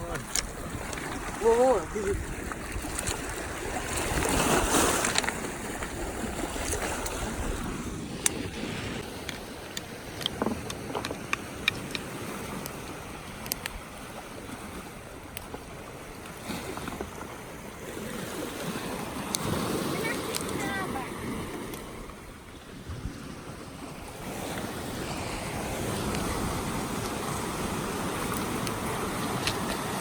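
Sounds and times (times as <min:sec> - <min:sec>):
waves washing on stony shore: 0:00.0 - 0:30.0
wind on microphone: 0:00.0 - 0:30.0
stones clicking and tapping: 0:09.2 - 0:12.7.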